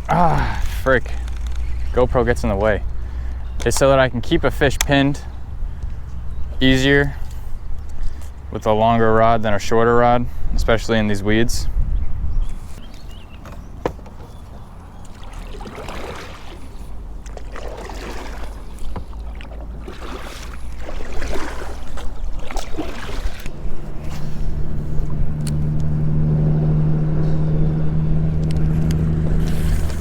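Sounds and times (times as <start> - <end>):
water swishes from kayak: 14.0 - 30.0
steady low hum: 16.7 - 30.0.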